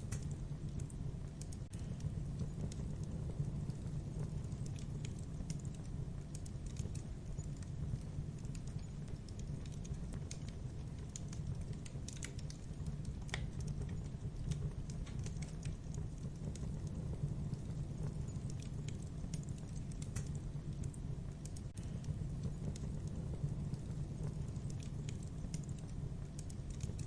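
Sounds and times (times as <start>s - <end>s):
burning logs crackling and popping: 0.0s - 27.0s
low rumble of flames: 0.0s - 27.0s.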